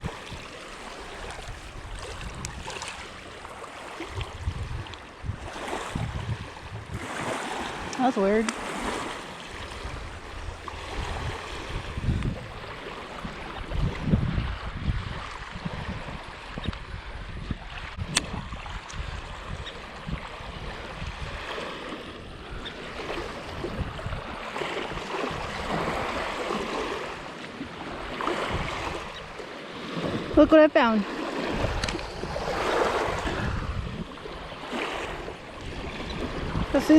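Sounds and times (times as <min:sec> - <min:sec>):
lake water lapping at shore: 0:00.0 - 0:36.9
wind gusting across microphone: 0:00.0 - 0:36.9
sharp click: 0:18.1 - 0:18.4.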